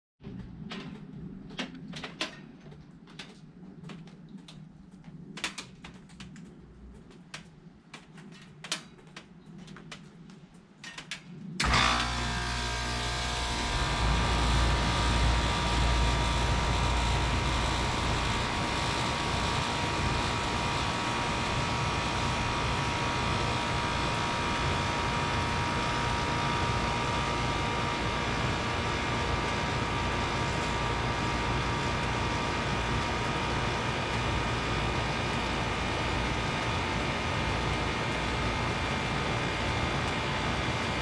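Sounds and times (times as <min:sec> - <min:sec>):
air conditioner compressor and fan running: 0:11.6 - 0:41.0.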